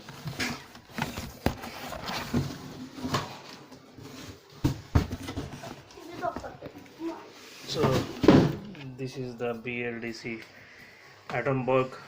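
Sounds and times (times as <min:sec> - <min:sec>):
cardboard box knocks and thuds: 0:04.6 - 0:05.7.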